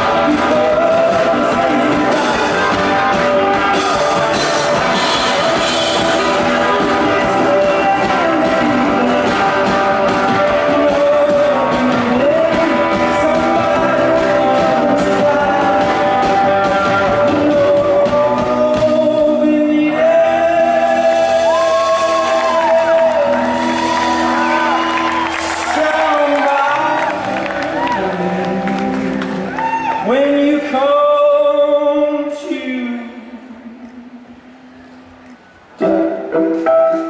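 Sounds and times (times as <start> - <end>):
guitar chords: 0.0 - 29.6, 33.2 - 37.0
person singing: 0.0 - 35.1
sliding melody line: 35.8 - 37.0.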